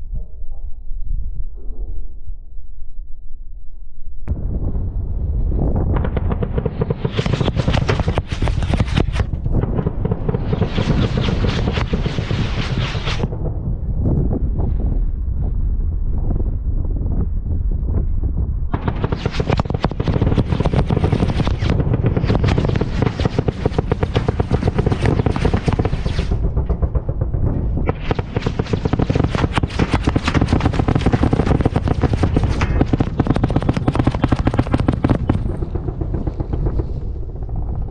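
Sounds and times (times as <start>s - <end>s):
autocannon fire: 4.3s - 14.6s, 18.7s - 37.9s
rounds cracking and hitting: 5.9s - 13.3s, 18.7s - 37.9s.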